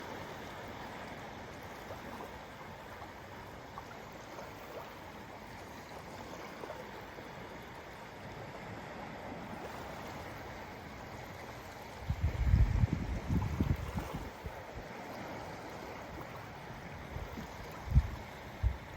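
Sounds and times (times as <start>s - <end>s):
lake waves lapping on shore: 0.0s - 18.9s
wind buffeting microphone: 11.9s - 14.9s, 15.9s - 18.9s.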